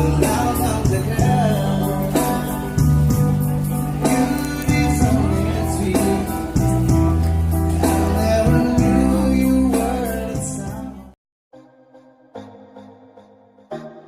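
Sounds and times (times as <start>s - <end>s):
music with singing and guitar: 0.0s - 11.2s.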